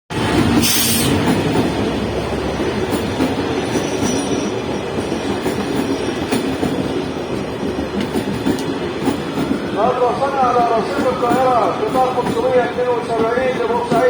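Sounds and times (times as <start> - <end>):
train rumble with clicking wheels: 0.1 - 14.0
high wheel squeal: 0.6 - 1.2, 3.6 - 4.6
hiss burst: 0.6 - 1.3.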